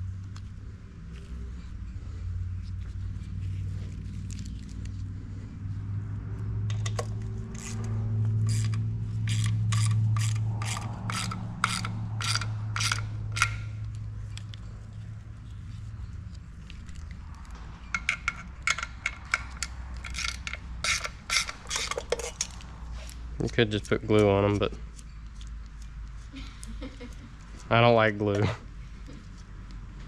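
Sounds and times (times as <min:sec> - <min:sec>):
steady low hum: 0:00.0 - 0:30.0
ratchet wrench strokes: 0:06.7 - 0:14.6, 0:17.9 - 0:22.6.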